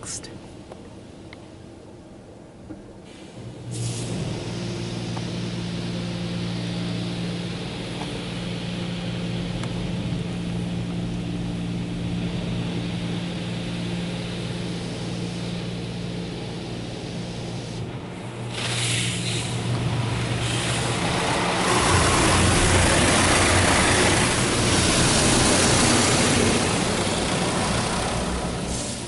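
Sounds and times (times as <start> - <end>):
water spray hissing on car: 3.1 - 8.7, 18.4 - 29.0.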